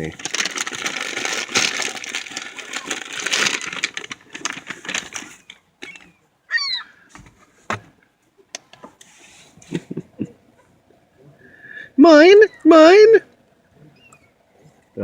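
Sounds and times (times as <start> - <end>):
chip bag crinkling: 0.0 - 6.2
seagull squawking: 5.8 - 7.1.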